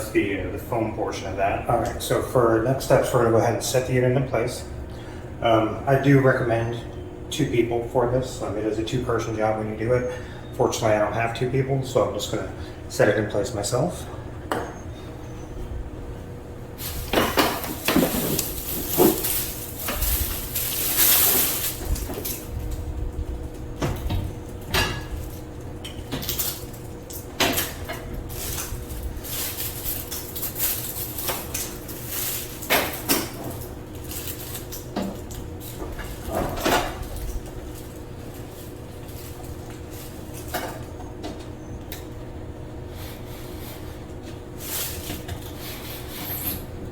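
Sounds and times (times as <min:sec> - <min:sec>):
air conditioner casing knocking: 0:16.7 - 0:42.2.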